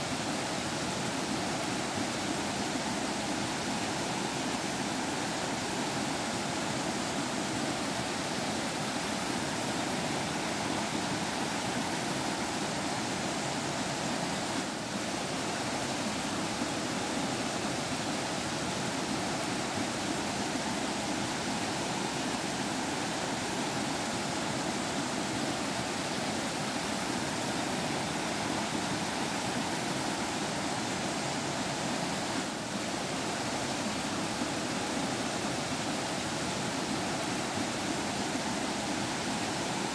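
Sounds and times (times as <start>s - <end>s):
stream water flowing over rocks: 0.0s - 39.9s.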